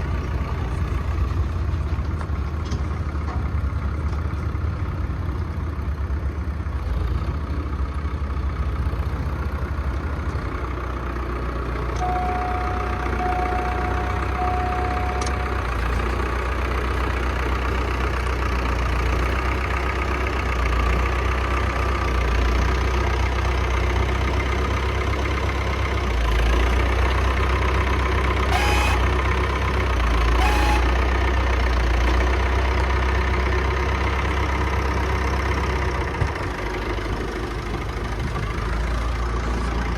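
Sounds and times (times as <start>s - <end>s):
tractor engine rumbling: 0.0s - 39.9s
steady high tone: 12.0s - 16.6s.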